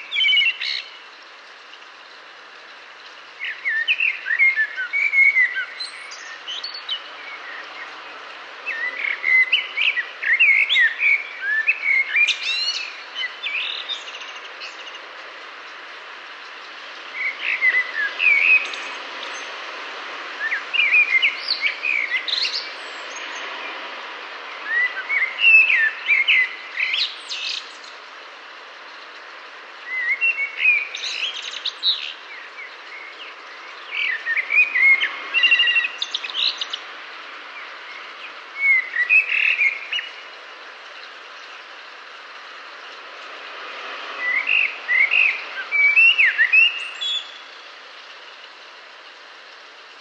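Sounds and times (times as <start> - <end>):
bird song warbled phrases: 0.0 - 1.1, 3.4 - 8.0, 8.6 - 15.0, 17.1 - 19.5, 24.5 - 28.0, 29.8 - 36.9, 37.6 - 41.8, 44.2 - 47.6
steady background hiss: 0.0 - 50.0.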